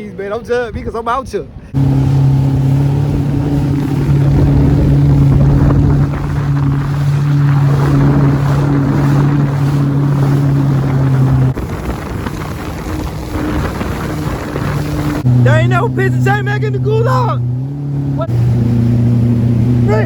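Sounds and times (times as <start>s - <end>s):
wind buffeting microphone: 0.0s - 20.0s
water noise: 1.5s - 20.0s
jet ski engine running: 1.7s - 20.0s.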